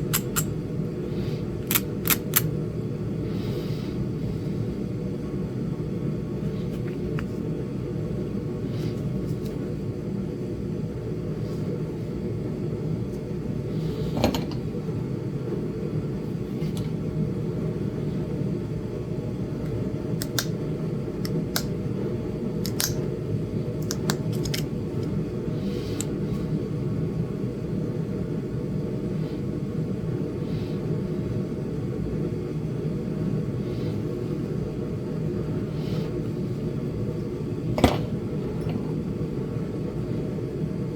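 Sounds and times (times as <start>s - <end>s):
stone being flaked with tool clicks: 0.0s - 0.5s, 1.7s - 2.5s, 20.2s - 20.6s, 21.2s - 21.8s, 22.6s - 23.0s, 23.8s - 25.2s.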